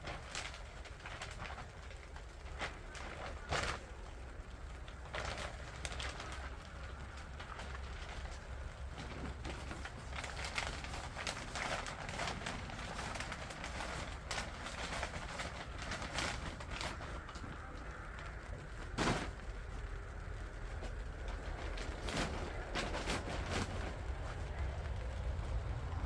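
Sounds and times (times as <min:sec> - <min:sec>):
compost scrapes and knocks: 0:18.8 - 0:19.8, 0:20.8 - 0:24.6.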